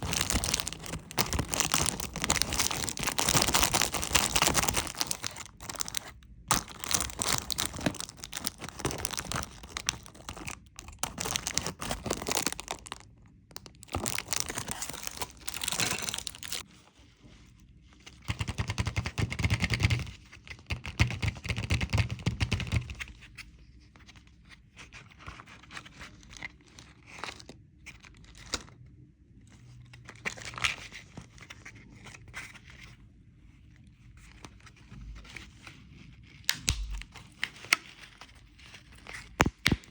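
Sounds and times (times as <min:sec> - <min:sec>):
candy wrappers crinkling: 0:00.0 - 0:16.6, 0:36.5 - 0:39.9.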